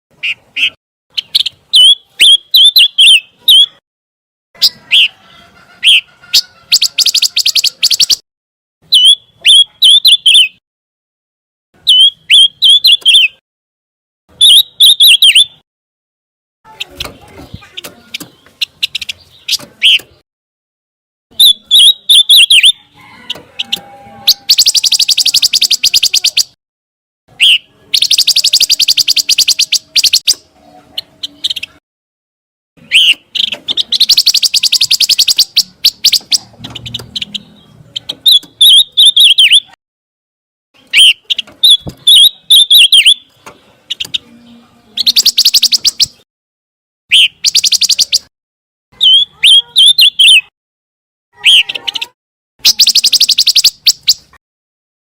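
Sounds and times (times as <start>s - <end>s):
songbird whistling and trilling: 0.2s - 3.8s, 5.8s - 8.2s, 8.9s - 10.6s, 11.8s - 13.4s, 14.4s - 15.6s, 21.3s - 26.6s, 27.4s - 31.7s, 32.8s - 39.8s, 40.8s - 46.2s, 47.1s - 48.3s, 49.0s - 50.5s, 51.4s - 54.4s.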